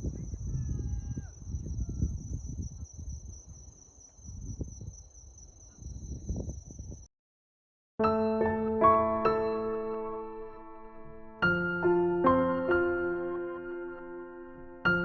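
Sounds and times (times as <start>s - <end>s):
crickets chirring: 0.0s - 7.1s
wind rumbling on microphone: 0.0s - 7.1s.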